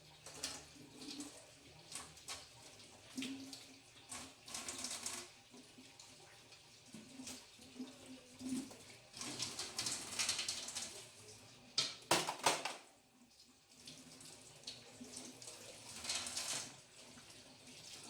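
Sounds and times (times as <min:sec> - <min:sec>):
tap water running and splashing: 0:00.0 - 0:18.0.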